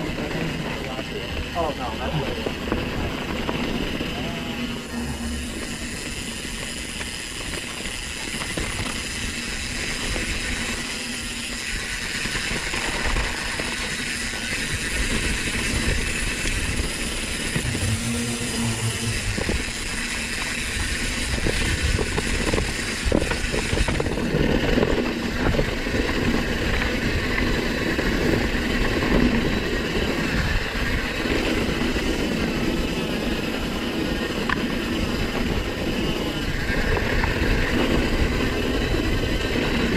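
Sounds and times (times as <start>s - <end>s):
wind noise on camera: 2.4s - 39.9s
bike chain rattling and knocking: 5.5s - 18.1s.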